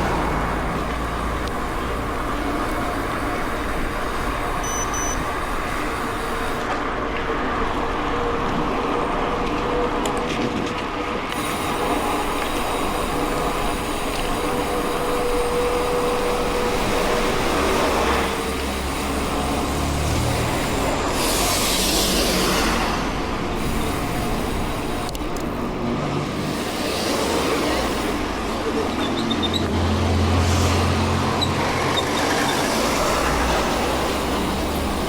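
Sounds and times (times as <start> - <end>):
bike tyres on gravel: 10.8 - 25.8.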